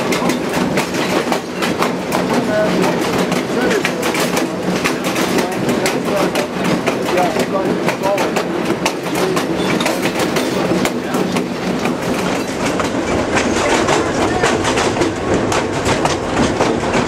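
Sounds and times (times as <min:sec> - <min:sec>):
train rumble: 0:00.0 - 0:17.0
train wheels clattering over joints: 0:00.0 - 0:17.0.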